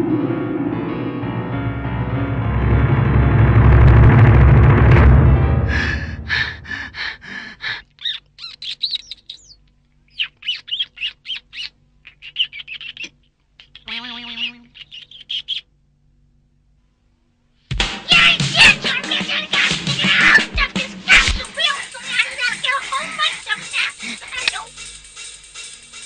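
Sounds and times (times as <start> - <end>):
birds chirping: 8.0 - 15.6.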